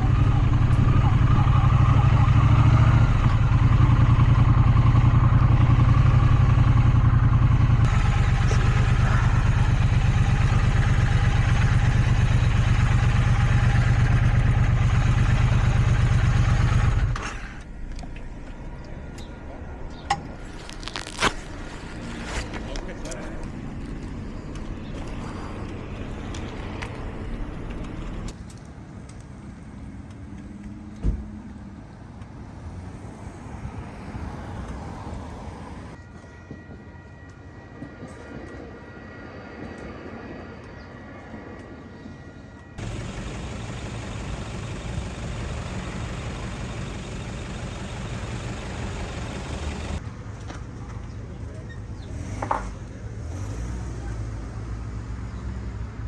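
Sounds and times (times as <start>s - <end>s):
motorcycle engine running: 0.0s - 17.2s, 42.8s - 50.0s
road noise: 0.0s - 40.5s, 42.8s - 56.0s.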